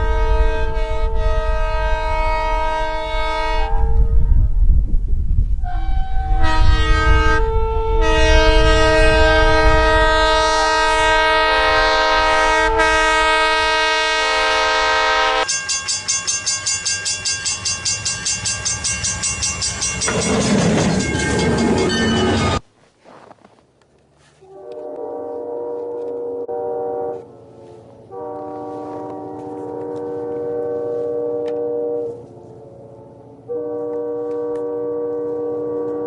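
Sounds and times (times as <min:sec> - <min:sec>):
locomotive air horn chord: 0:00.0 - 0:04.5, 0:05.6 - 0:15.5, 0:24.4 - 0:36.0
passing train rumble: 0:00.0 - 0:22.7, 0:24.1 - 0:36.0.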